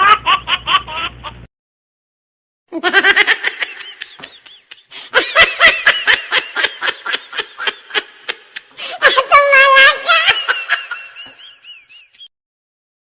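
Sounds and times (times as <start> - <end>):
high-pitched giggling: 2.7 - 12.3.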